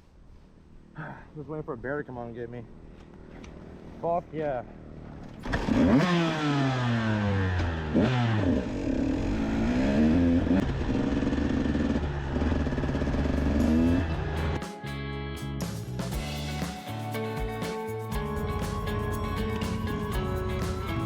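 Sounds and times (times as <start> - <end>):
dirt bike engine revving: 5.4 - 14.6
music: 13.7 - 21.0.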